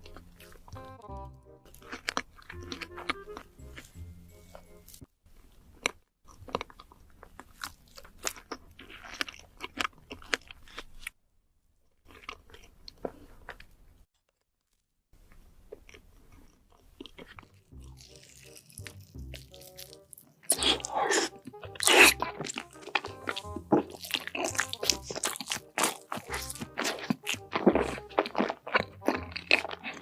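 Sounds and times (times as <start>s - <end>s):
crisp crunching and chewing: 0.0s - 1.0s, 1.6s - 11.2s, 11.8s - 30.0s.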